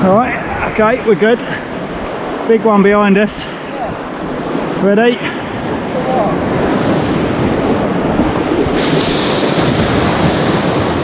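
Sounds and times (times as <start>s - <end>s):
surf wave rushing and hissing: 0.0s - 11.0s
wind buffeting microphone: 0.0s - 11.0s.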